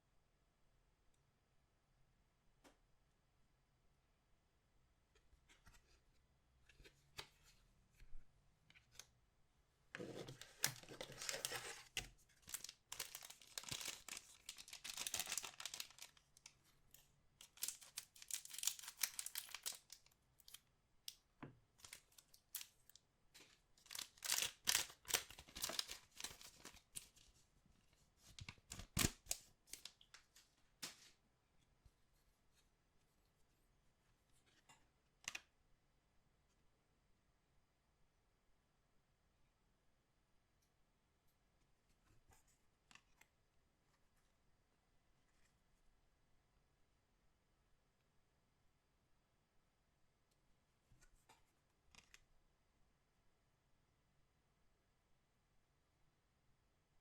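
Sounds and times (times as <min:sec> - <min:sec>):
plastic wrapping tearing and crinkling: 0:10.4 - 0:16.3, 0:17.4 - 0:20.6, 0:23.8 - 0:27.1.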